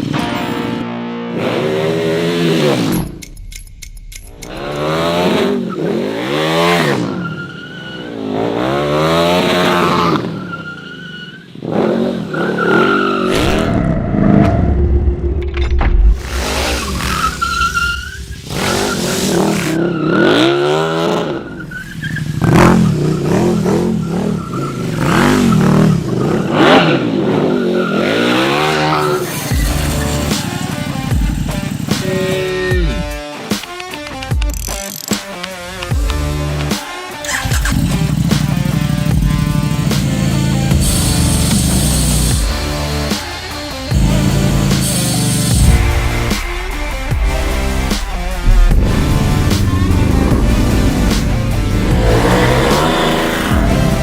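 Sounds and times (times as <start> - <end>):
motorcycle engine revving: 0.0 - 7.2, 11.6 - 33.2, 35.7 - 54.0
tyre squeals: 16.3 - 20.6.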